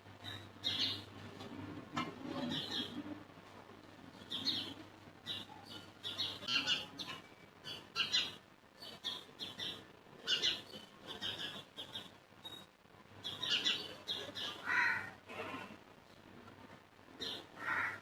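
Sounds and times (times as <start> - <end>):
small birds chirping: 0.2 - 1.1, 4.1 - 14.7.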